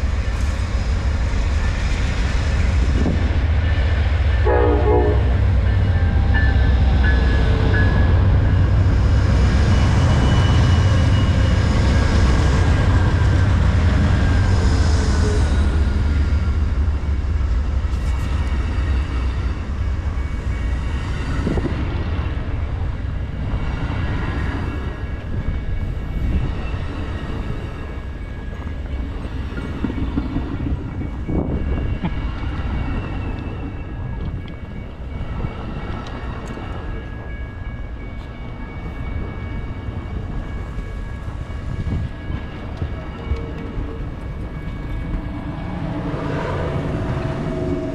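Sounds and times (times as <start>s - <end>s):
train rumbling: 0.0s - 47.9s
high squeal: 6.0s - 16.5s.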